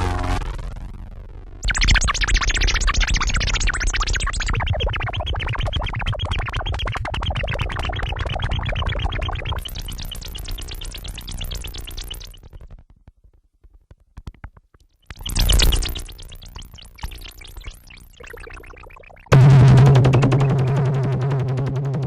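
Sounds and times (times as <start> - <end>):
synthesizer music: 15.2 - 22.0.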